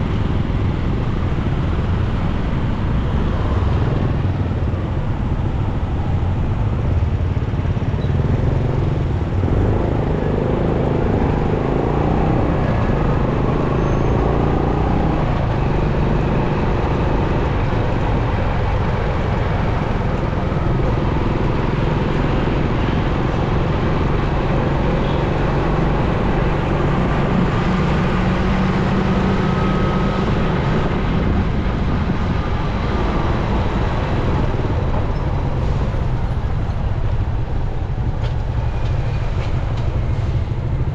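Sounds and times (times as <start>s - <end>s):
surrounding traffic noise: 0.0s - 40.9s
motorcycle engine running: 3.7s - 13.8s.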